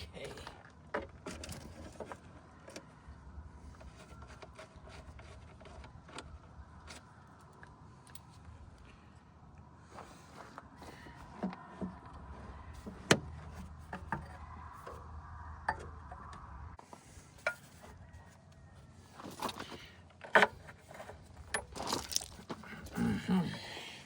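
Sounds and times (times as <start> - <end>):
metal parts and tools clanking: 19.3 - 23.3.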